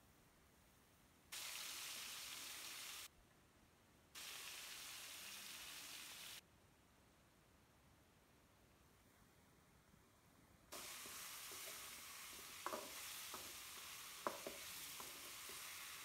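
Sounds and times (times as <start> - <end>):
vegetables sizzling in hot oil: 1.4 - 3.1, 4.2 - 6.4, 10.7 - 16.0.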